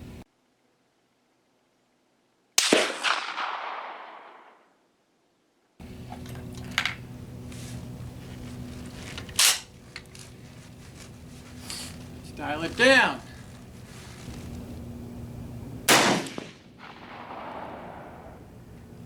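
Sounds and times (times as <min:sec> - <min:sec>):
rifle shot: 0:02.6 - 0:04.6, 0:15.9 - 0:18.4.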